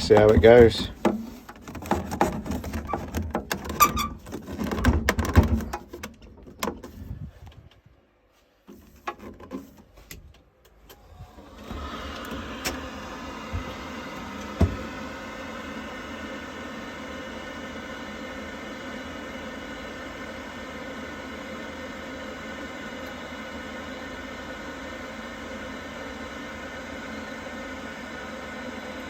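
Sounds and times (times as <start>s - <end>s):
plastic parts clicking and knocking: 0.0s - 6.9s
boiler fan humming: 0.0s - 29.0s.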